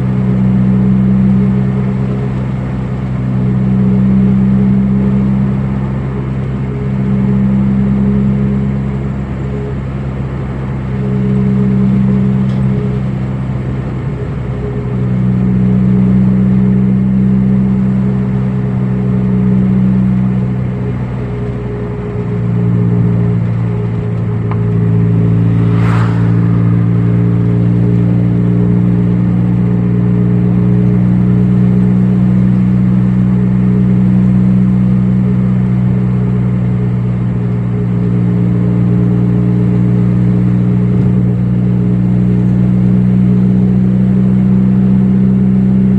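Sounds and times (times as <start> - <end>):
car engine droning: 0.0 - 45.9
short whoosh: 23.6 - 29.8.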